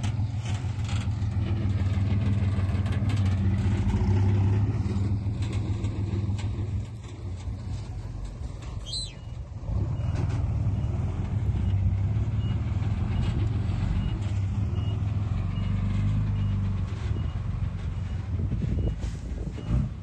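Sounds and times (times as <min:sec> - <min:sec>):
heavy diesel engine droning: 0:00.0 - 0:20.0.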